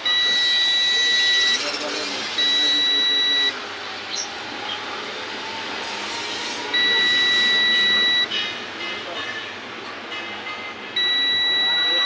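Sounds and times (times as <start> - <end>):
electronic beep: 0.0 - 4.3, 6.7 - 8.3, 11.0 - 12.0.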